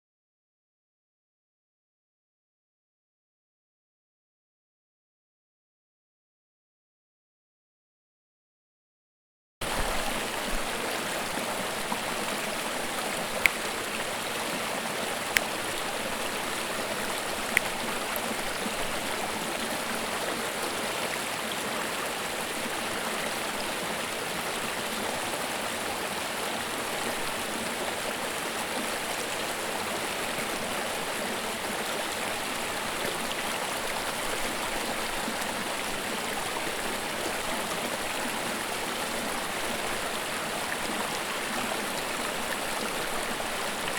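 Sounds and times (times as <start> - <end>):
creek babbling over rocks: 9.6 - 43.9.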